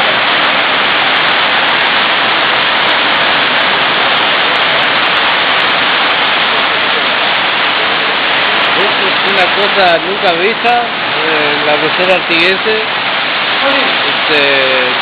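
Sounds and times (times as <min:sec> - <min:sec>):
torrential rain pouring: 0:00.0 - 0:15.0.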